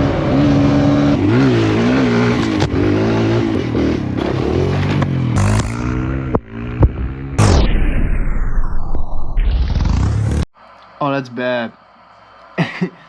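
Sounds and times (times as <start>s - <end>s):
dirt bike engine revving: 0.0s - 7.7s.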